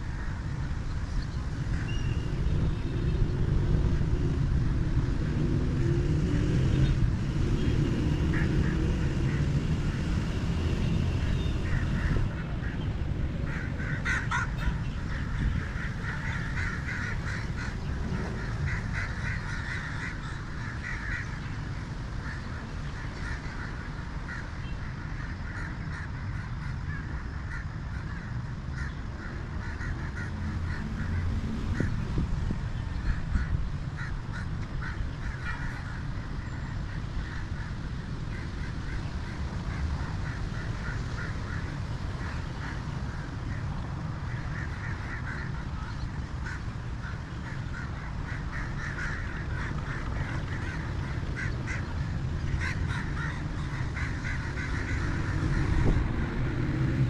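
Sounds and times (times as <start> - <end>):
birds calling: 0.0 - 57.0.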